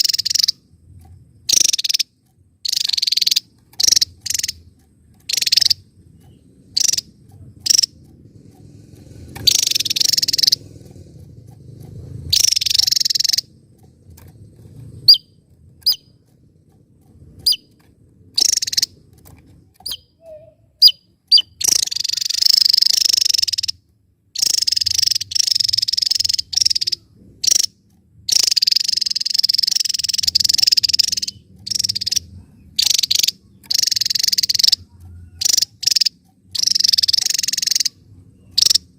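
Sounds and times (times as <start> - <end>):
bird singing rapid high notes: 0.0 - 0.6, 1.4 - 8.0, 9.4 - 10.6, 12.3 - 13.6, 15.0 - 16.2, 17.4 - 17.8, 18.4 - 19.0, 19.8 - 23.8, 24.4 - 38.9.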